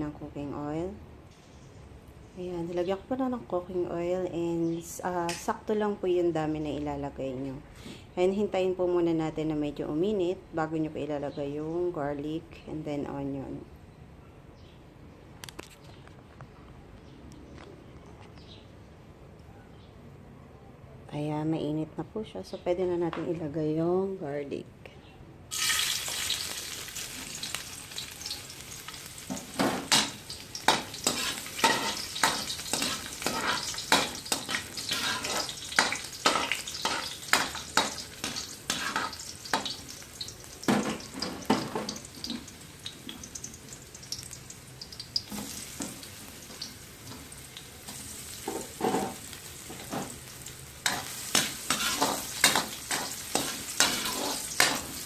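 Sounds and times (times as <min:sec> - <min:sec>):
garlic sizzling in hot oil: 0:25.5 - 0:55.0
utensil scraping a pan: 0:30.7 - 0:39.8, 0:50.9 - 0:55.0.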